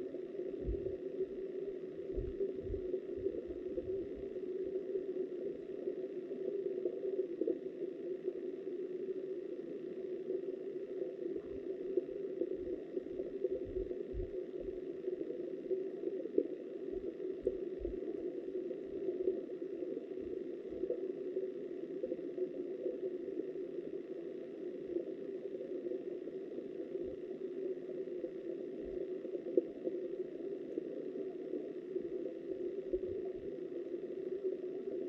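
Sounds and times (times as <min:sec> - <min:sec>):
muffled underwater river rush: 0:00.2 - 0:09.4, 0:10.0 - 0:24.0
dull low thumps: 0:02.1 - 0:04.0.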